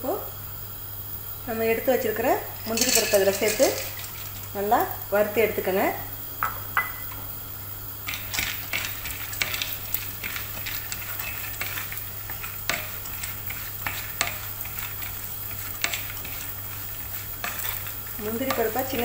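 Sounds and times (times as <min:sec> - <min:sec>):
nuts sizzling in hot fat: 0:00.0 - 0:19.0
wooden spatula scraping pan: 0:08.1 - 0:19.0.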